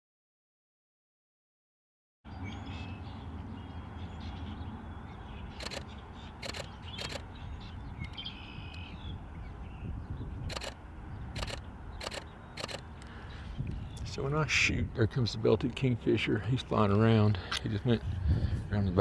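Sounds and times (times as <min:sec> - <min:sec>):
faint bird chirps: 0:02.5 - 0:09.9, 0:11.4 - 0:14.0
camera shutter clicks: 0:05.6 - 0:07.2, 0:10.5 - 0:10.8, 0:11.4 - 0:12.9.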